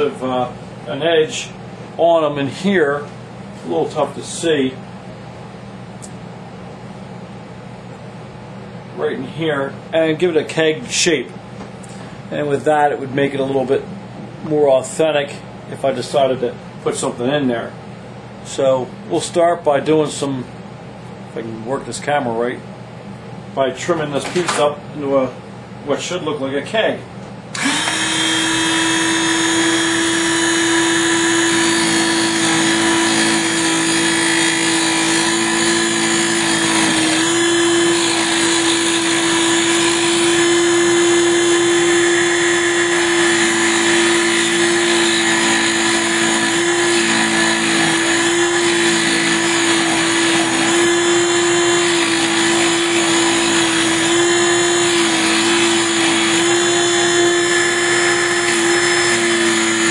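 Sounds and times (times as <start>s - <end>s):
mini lathe motor humming: 27.6s - 59.9s.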